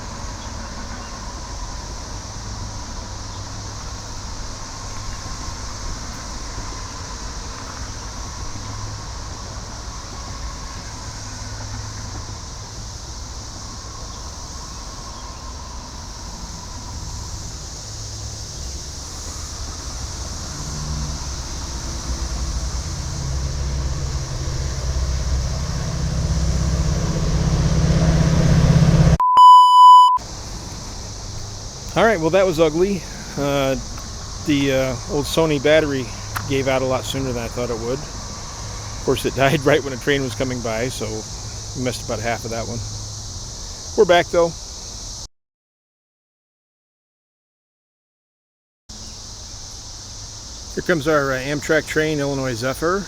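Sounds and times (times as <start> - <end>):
cicada chorus: 0.0 - 29.2, 30.2 - 45.3, 48.9 - 53.0
train low rumble: 0.0 - 29.2, 30.2 - 43.9
electronic beep: 29.2 - 30.2.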